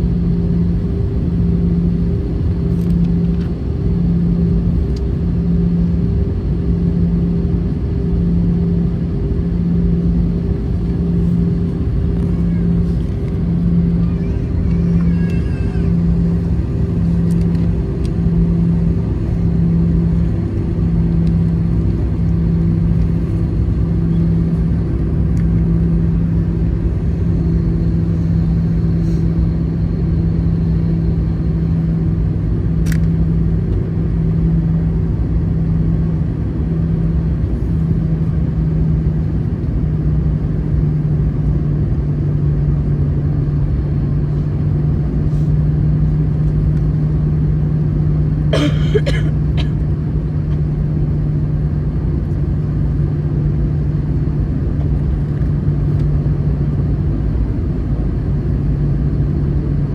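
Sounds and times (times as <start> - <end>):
airplane cabin drone: 0.0 - 59.9
low pulsing hum: 0.0 - 59.9
faint click: 32.8 - 33.1.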